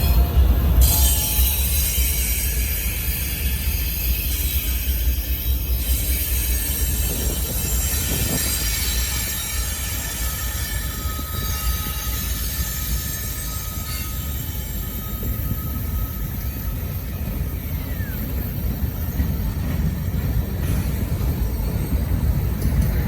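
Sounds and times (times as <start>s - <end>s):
freight train rumbling: 0.0s - 23.0s
wheels squealing on rails: 0.0s - 23.0s.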